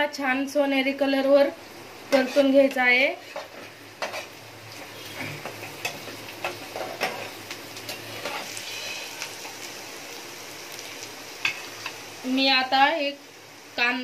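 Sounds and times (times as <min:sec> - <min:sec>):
onions sizzling in oil: 0:00.0 - 0:14.0
spoon scraping a pan: 0:02.1 - 0:09.6, 0:11.4 - 0:12.0.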